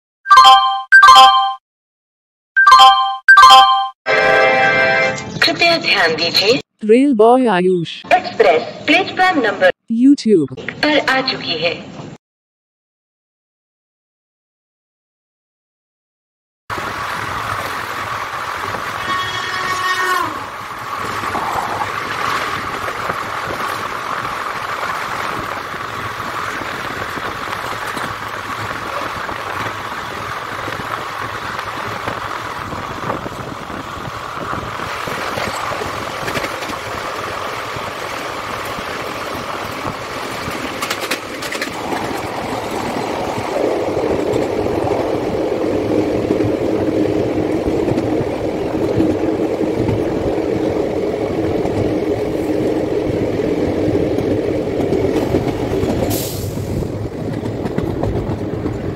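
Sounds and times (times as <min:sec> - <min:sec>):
passing freight train: 0:16.7 - 0:58.9
train wheels rushing on rail: 0:16.7 - 0:58.9.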